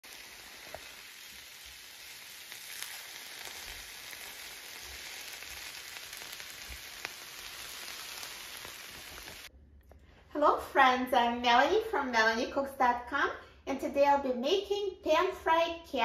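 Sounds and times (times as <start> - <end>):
vegetables sizzling in oil: 0.0 - 9.5.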